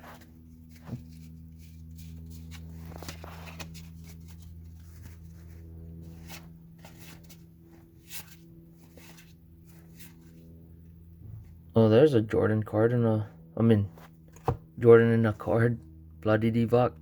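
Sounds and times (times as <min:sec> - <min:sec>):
cards being flipped through: 0:00.0 - 0:10.4
steady low hum: 0:00.0 - 0:17.0.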